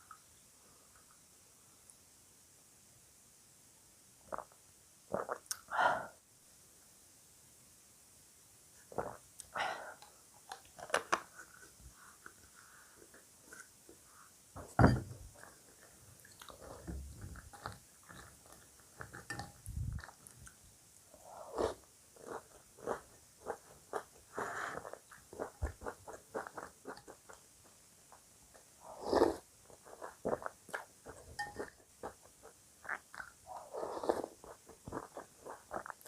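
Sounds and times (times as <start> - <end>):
chewing crunchy cereal: 10.5 - 12.4, 15.4 - 19.4, 21.4 - 27.8, 28.5 - 36.0.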